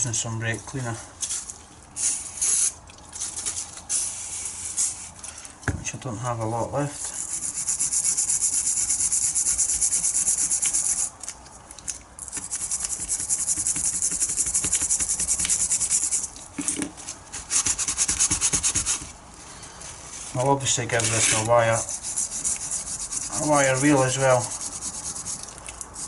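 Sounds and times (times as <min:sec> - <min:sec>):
scrubbing metal part by hand: 0:07.0 - 0:11.3, 0:12.3 - 0:16.8, 0:20.3 - 0:26.0.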